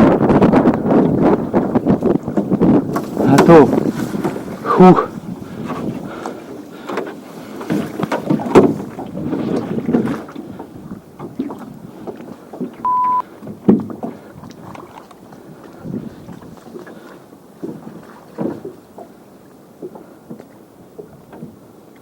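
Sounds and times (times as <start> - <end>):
wind on microphone: 0.0 - 18.8
oars knocking against hull: 0.1 - 22.0
oars splashing in water: 2.0 - 22.0
short steady beep: 12.8 - 13.2.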